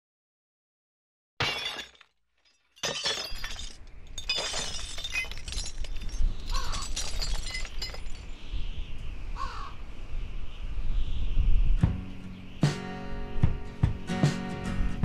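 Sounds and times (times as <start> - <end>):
crow-like bird cawing: 6.5 - 6.8, 9.4 - 9.9.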